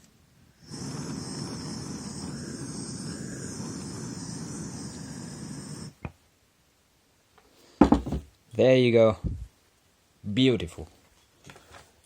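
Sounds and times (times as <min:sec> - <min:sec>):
heat gun blowing: 0:00.6 - 0:06.1.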